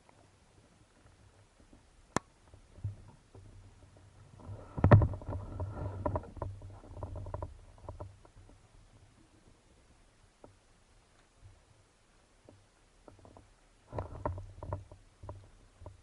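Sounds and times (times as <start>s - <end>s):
low underwater rumbling: 0.6s - 10.6s.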